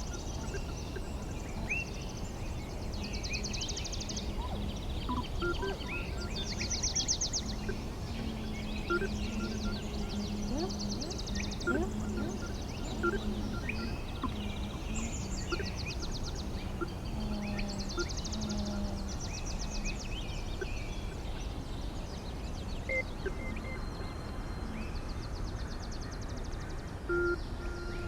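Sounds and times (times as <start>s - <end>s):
bird-like calls: 0.0s - 19.6s.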